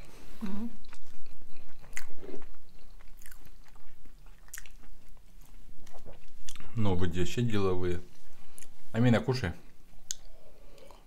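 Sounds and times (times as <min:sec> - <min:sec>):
chewing pizza: 0:00.4 - 0:06.9
mouth clicks and smacks: 0:10.0 - 0:11.0.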